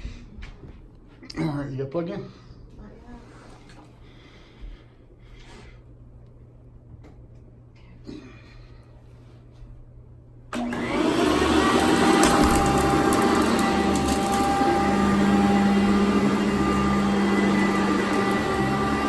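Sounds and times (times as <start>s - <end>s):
vacuum cleaner motor whining: 10.5s - 19.0s.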